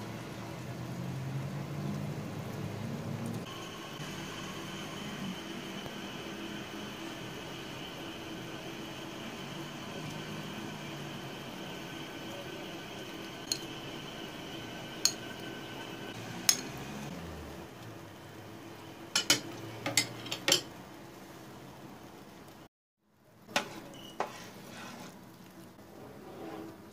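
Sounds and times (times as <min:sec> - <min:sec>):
metal spoon clinking on dishes: 0:13.5 - 0:13.7.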